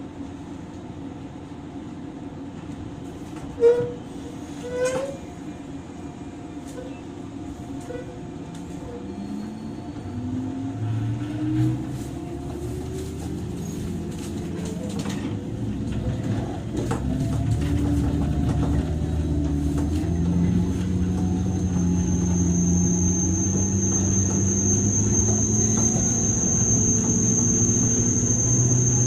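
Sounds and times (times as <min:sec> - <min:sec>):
train running rumble: 0:00.0 - 0:29.0
train motor whine rising: 0:08.9 - 0:29.0.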